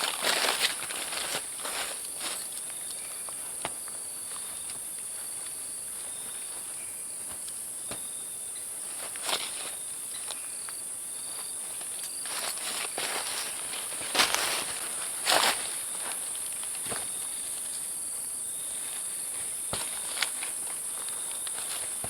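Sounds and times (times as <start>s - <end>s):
rustles on leaf litter: 0.0s - 3.6s, 8.8s - 17.7s, 18.6s - 22.0s
insects chorus: 0.0s - 22.0s.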